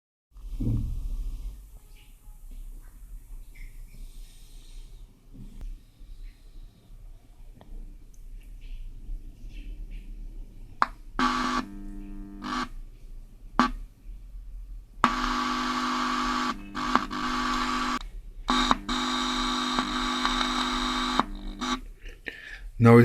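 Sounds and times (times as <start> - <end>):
loudspeaker buzzing hum with hiss: 10.8 - 12.8, 15.0 - 22.0.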